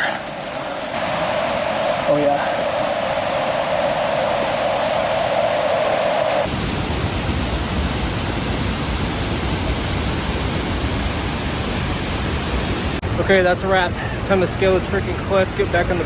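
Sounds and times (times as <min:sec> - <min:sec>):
waterfall roaring: 0:06.4 - 0:16.0.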